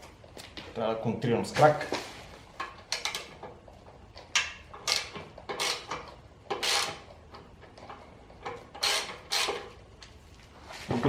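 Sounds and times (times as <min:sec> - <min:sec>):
spanner scraping clicks on bolt: 0:04.2 - 0:09.7.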